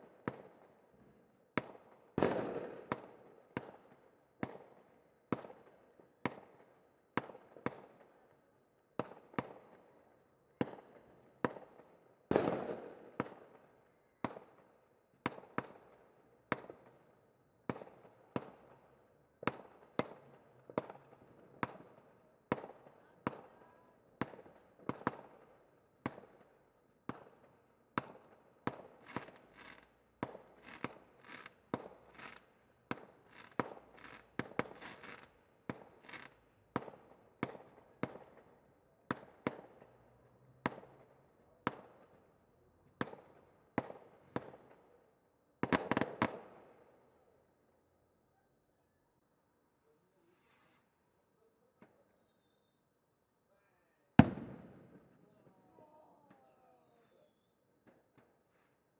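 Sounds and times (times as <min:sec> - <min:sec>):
fireworks banging: 0:29.0 - 0:36.9, 0:54.2 - 0:55.0.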